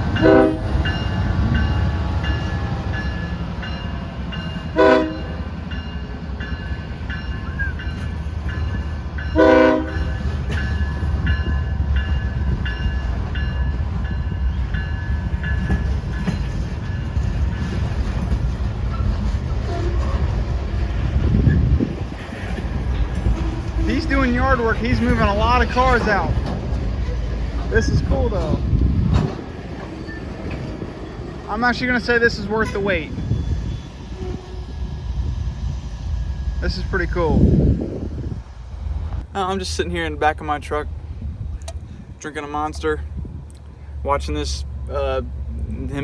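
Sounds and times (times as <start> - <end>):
locomotive horn blasts: 0.0 - 1.3, 4.7 - 5.5, 9.3 - 10.3, 19.6 - 20.4, 32.4 - 33.6
diesel locomotive engine rumble: 0.0 - 46.0.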